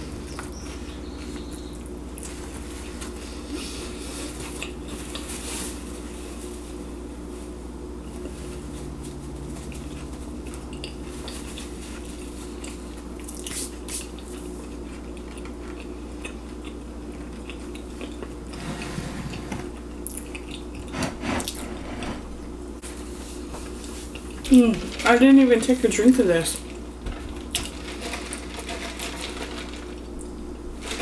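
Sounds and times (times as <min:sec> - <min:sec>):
steady low hum: 0:00.0 - 0:13.5, 0:14.2 - 0:27.6
person chewing crunchy food: 0:09.6 - 0:18.6, 0:19.7 - 0:21.6.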